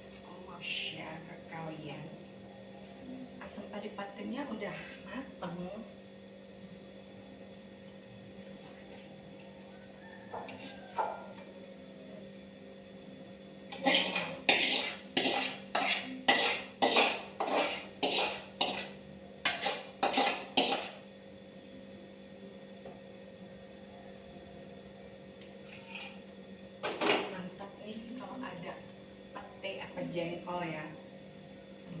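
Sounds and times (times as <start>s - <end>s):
metal utensil scraping a pot: 13.7s - 18.9s, 19.5s - 21.0s.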